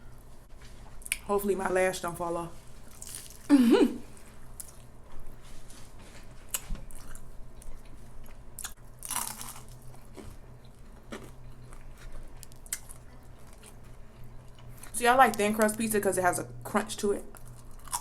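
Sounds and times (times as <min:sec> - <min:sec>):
chewing crunchy pizza: 0:02.7 - 0:03.5, 0:04.1 - 0:15.8, 0:17.2 - 0:18.0.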